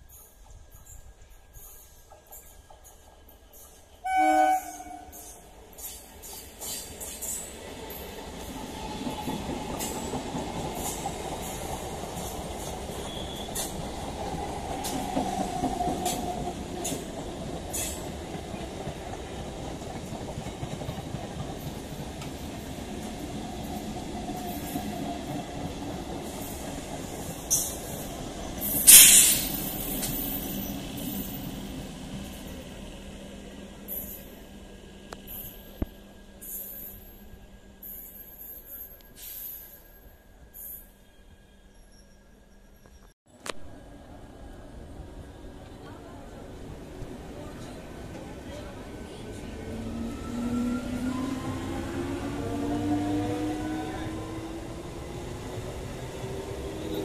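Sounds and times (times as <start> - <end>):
clicks of train wheels: 0.0 - 32.6, 33.9 - 40.0
train wheels rumbling on rails: 0.0 - 39.8, 44.0 - 57.0.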